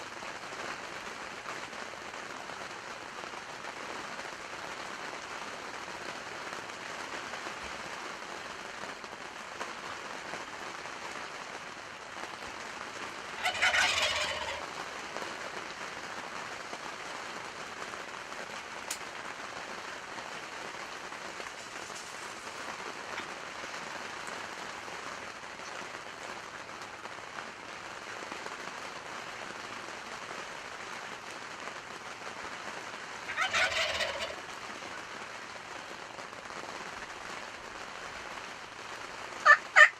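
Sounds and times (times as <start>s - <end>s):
rain hiss: 0.0s - 39.9s
turkeys gobbling: 13.4s - 14.7s, 33.3s - 34.4s, 39.4s - 39.9s.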